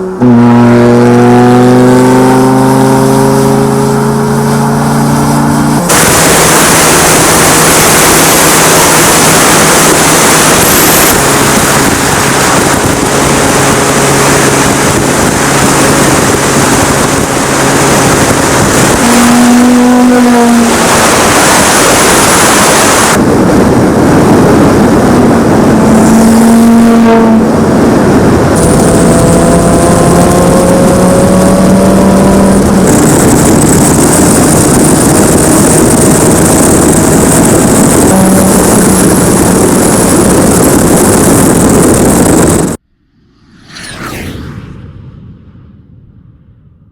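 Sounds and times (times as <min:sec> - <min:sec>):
car engine and exhaust revving: 0:00.0 - 0:44.7.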